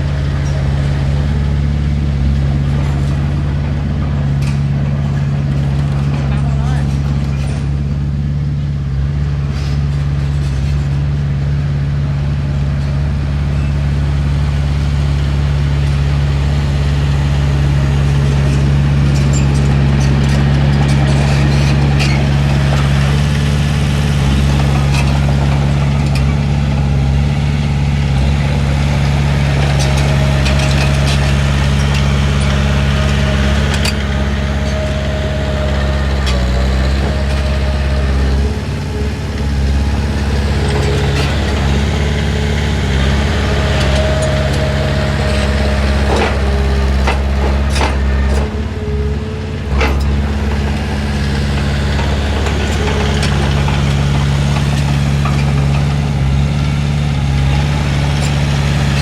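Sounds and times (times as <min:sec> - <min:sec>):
heavy diesel engine running: 0:00.0 - 0:59.0
metallic clanks and rattles: 0:18.2 - 0:27.2, 0:28.1 - 0:56.5.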